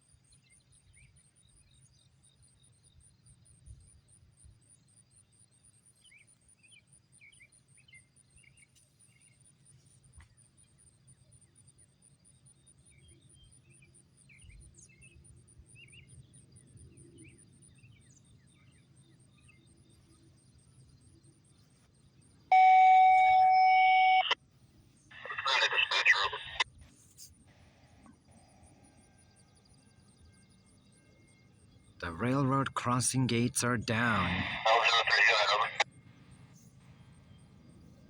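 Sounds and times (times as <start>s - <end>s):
loud electronic tone: 22.5s - 24.3s.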